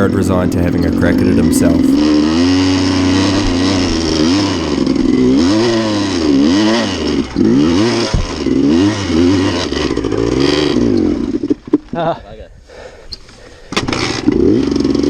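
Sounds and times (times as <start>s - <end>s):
dirt bike engine revving: 0.0s - 11.7s, 13.9s - 15.0s.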